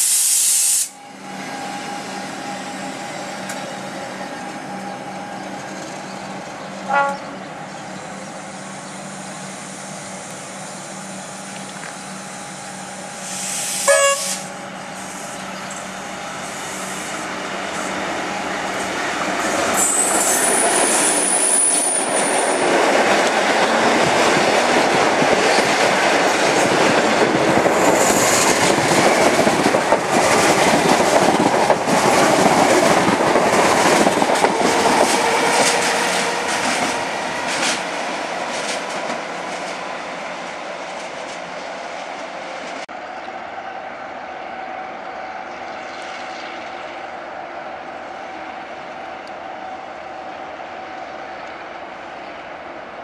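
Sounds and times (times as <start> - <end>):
train rumble and wheel clatter: 0.0 - 53.0
train horn toot: 6.9 - 7.5, 13.8 - 14.5, 34.4 - 37.0
wheel squeal: 19.7 - 22.4.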